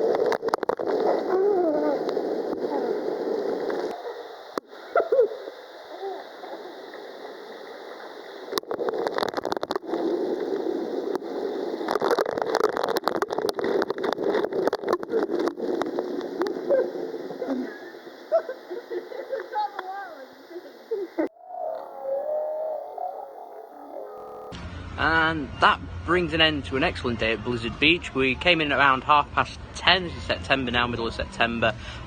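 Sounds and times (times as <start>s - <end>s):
rushing splashing water: 0.0s - 21.2s
faint voices: 16.4s - 31.8s.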